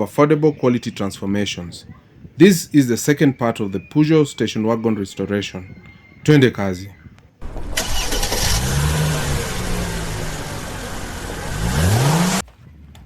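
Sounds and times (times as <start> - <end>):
car engine revving: 7.4 - 12.4.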